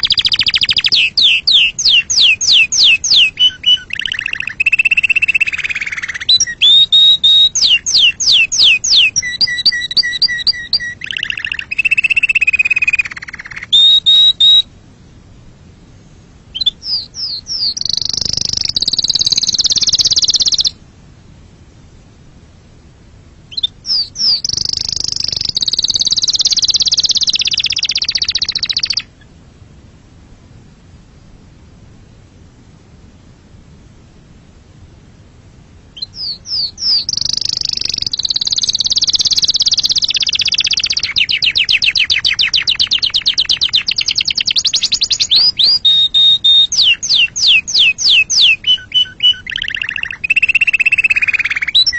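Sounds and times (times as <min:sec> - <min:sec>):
canary singing trills: 0:00.0 - 0:14.7, 0:16.5 - 0:20.8, 0:23.5 - 0:29.3, 0:36.0 - 0:51.9.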